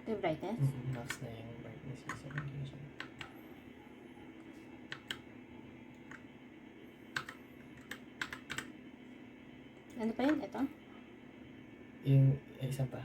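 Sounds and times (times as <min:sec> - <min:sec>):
mechanical keyboard keys clicking: 0:04.9 - 0:05.2, 0:07.2 - 0:08.7.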